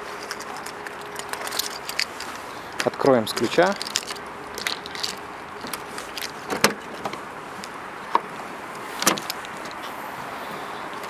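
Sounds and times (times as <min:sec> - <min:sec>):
car trunk latch clicks: 0:06.5 - 0:07.2, 0:08.1 - 0:09.8.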